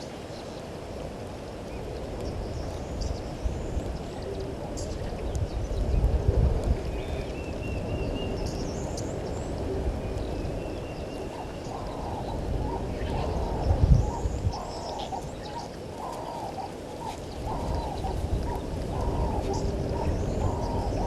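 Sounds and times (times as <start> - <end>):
birds chirping and trilling: 1.7 - 21.0
bird cooing: 4.0 - 5.3, 8.2 - 21.0.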